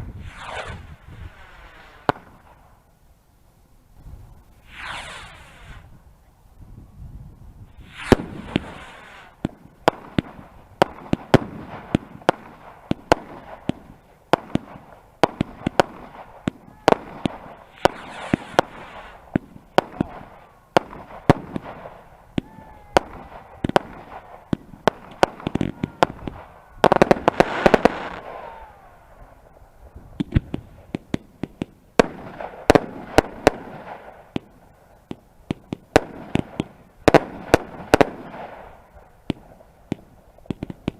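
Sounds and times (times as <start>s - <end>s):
faint firework whistles: 0.0s - 2.8s, 4.0s - 6.0s, 7.7s - 9.6s, 15.7s - 31.2s
fireworks bangs: 0.0s - 2.8s, 4.5s - 6.0s, 7.7s - 40.9s
fireworks crackling: 0.0s - 2.9s, 3.9s - 6.2s, 7.6s - 40.9s.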